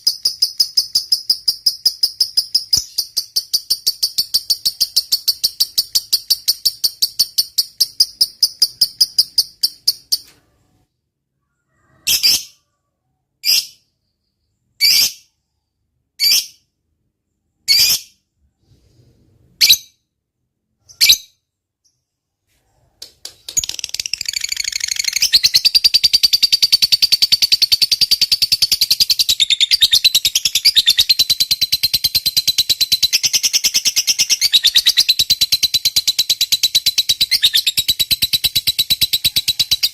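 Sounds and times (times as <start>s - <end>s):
lovebird chattering trill: 23.5s - 39.9s.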